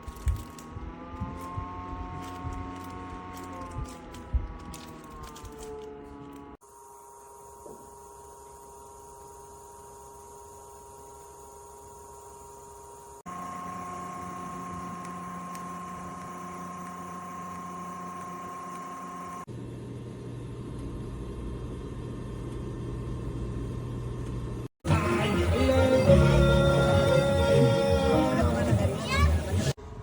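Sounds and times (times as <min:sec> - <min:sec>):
electric fan humming: 0:06.8 - 0:29.5
music: 0:24.8 - 0:29.7.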